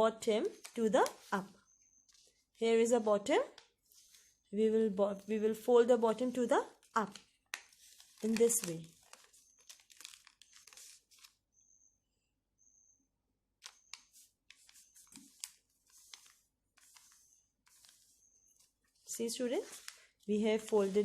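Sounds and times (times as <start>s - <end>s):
paper rustling as folded: 6.9s - 11.4s, 13.6s - 21.0s.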